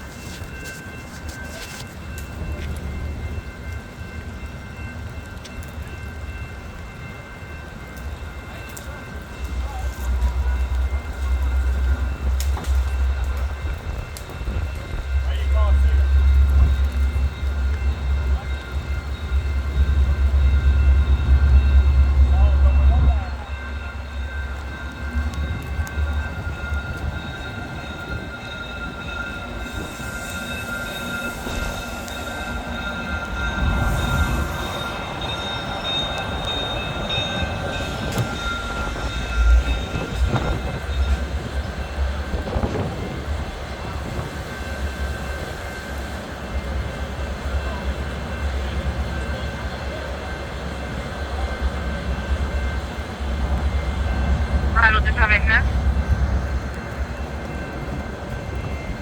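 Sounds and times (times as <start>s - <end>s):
train rumbling past: 0.0s - 59.0s.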